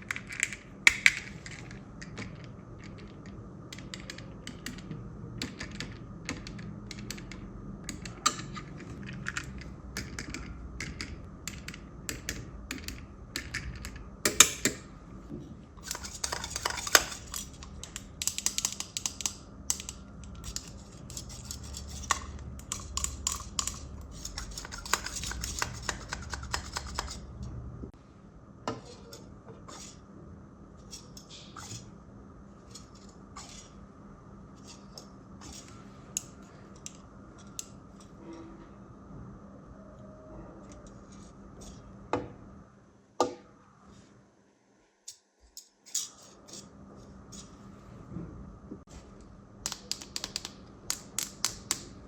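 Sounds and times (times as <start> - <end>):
small objects clicking and scraping: 15.8 - 27.2.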